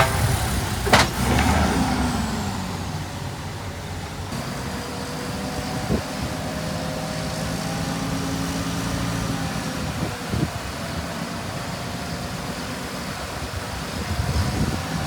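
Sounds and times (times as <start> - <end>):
short knocks: 0.0 - 1.6
diesel engine running: 0.0 - 15.0.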